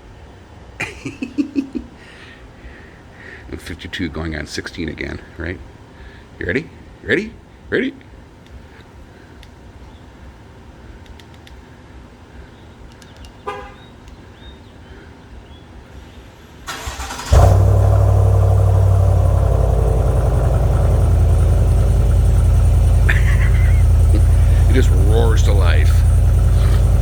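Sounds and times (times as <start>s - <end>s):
engine cranking: 16.7s - 27.0s
engine roaring and idling: 16.7s - 27.0s.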